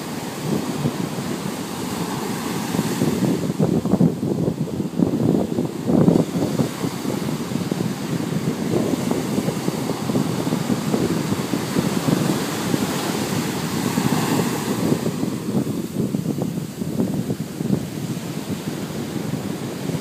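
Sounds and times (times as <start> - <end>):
ocean waves breaking: 0.0 - 20.0
wind buffeting microphone: 0.0 - 20.0.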